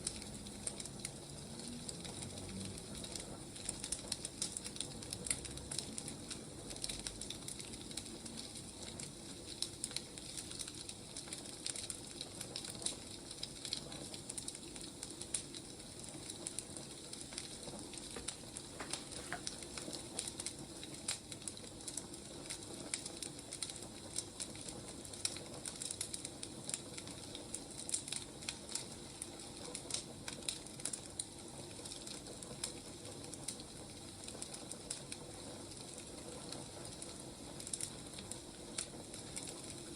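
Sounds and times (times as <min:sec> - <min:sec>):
fire crackling and popping: 0:00.0 - 0:39.9
wood fire hissing: 0:00.0 - 0:39.9.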